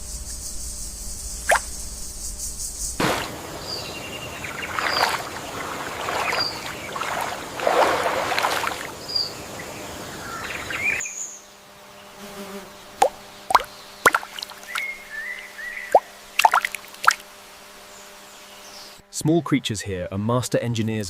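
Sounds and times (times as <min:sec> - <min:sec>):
insects buzzing: 0:00.0 - 0:21.0
wetland ambience: 0:02.9 - 0:11.0, 0:12.8 - 0:19.0
water plops: 0:03.0 - 0:08.9, 0:13.0 - 0:14.9, 0:15.9 - 0:17.2.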